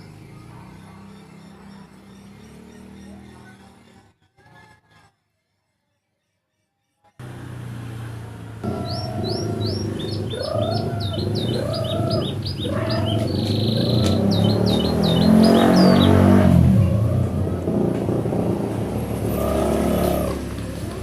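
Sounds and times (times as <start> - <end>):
rumbling noise: 7.2 - 21.0
canary singing rising chirps: 8.6 - 17.9.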